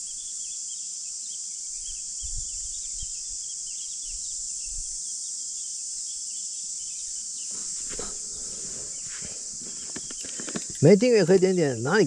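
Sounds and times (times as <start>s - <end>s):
faint bird chirps: 0.0s - 11.9s
crickets chirping: 0.0s - 12.0s.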